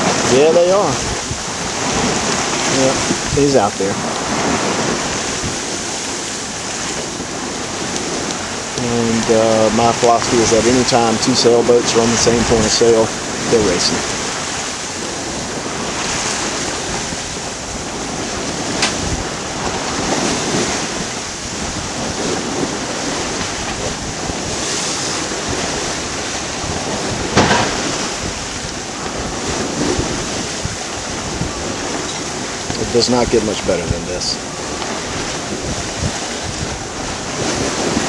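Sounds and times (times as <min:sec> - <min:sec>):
water rushing around hull: 0:00.0 - 0:38.0
wind buffeting microphone: 0:00.0 - 0:38.0
sudden sharp hits: 0:27.3 - 0:28.3.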